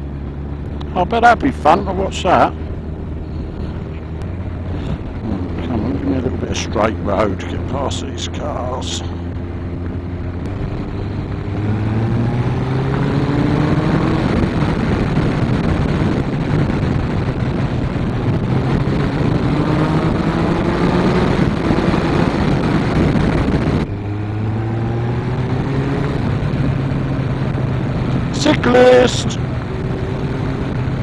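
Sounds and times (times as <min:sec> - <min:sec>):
motorcycle engine revving: 0:00.0 - 0:08.0, 0:08.8 - 0:31.0
wind rush on microphone: 0:02.8 - 0:07.4, 0:09.1 - 0:31.0.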